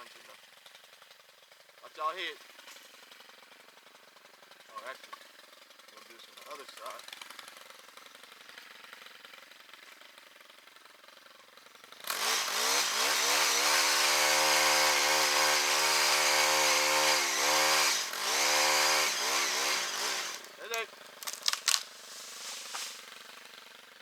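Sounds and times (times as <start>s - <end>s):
two-stroke saw engine revving: 3.0s - 24.0s.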